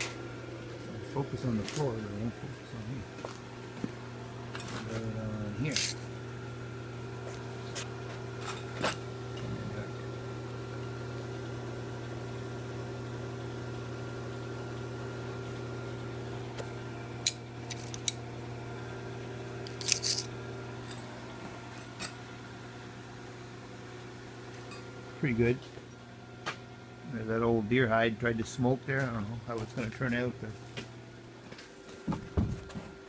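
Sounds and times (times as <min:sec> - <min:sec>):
motor-like hum: 0:00.0 - 0:33.0
small objects clicking and scraping: 0:17.6 - 0:18.2, 0:19.7 - 0:20.3.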